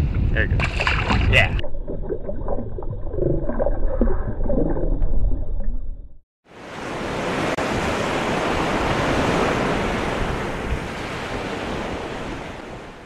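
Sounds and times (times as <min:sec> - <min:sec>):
wind: 0:00.0 - 0:01.6, 0:06.4 - 0:13.0
waves on open water: 0:06.4 - 0:13.0.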